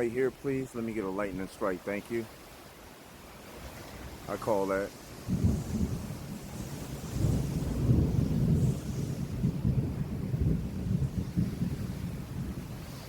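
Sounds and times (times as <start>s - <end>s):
thunder rumbling: 5.1s - 13.0s.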